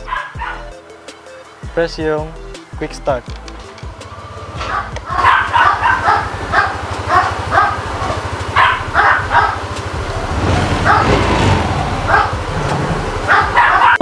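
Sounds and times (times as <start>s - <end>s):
dog barking: 0.0s - 0.8s, 4.6s - 12.6s, 13.2s - 14.0s
scooter engine idling: 3.4s - 14.0s.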